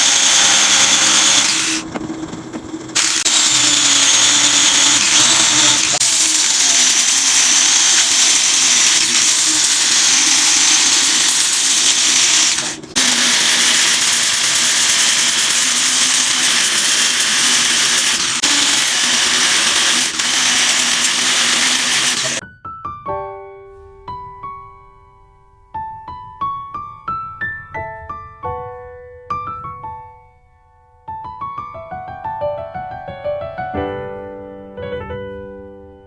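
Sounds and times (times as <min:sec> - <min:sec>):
electric power tool on wood: 0:00.0 - 0:22.4.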